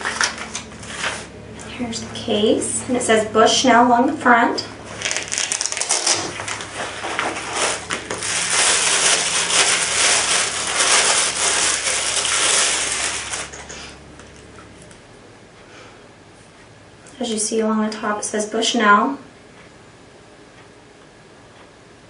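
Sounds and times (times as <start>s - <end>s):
packaging rustling: 0.0s - 1.3s, 4.9s - 14.4s.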